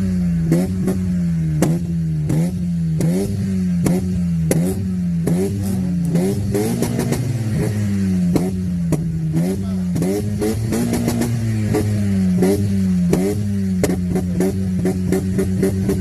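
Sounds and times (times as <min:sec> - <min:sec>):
car engine on rev limiter: 0:00.0 - 0:16.0
exhaust pops and crackles: 0:00.0 - 0:16.0.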